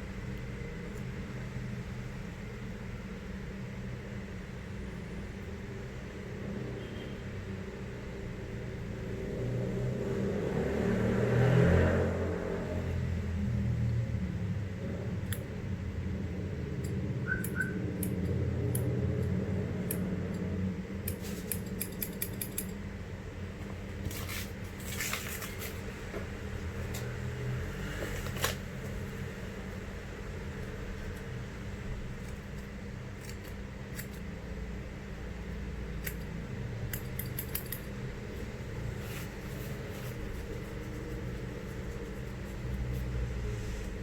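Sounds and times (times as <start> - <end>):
low steady rumble: 12.1 - 44.0.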